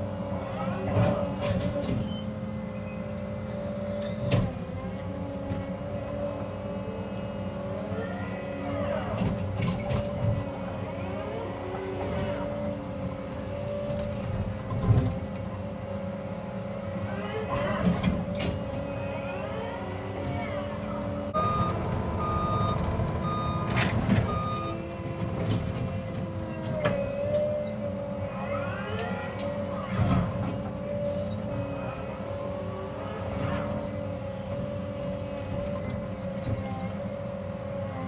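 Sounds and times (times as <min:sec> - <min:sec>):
excavator diesel engine running: 0:00.0 - 0:38.0
hydraulics working: 0:00.0 - 0:38.0
reversing alarm beeps: 0:21.4 - 0:24.9.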